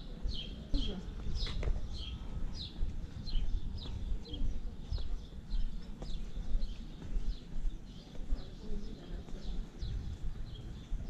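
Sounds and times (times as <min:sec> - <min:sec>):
small birds chirping: 0:00.0 - 0:11.0
steady low rumble: 0:00.3 - 0:07.4.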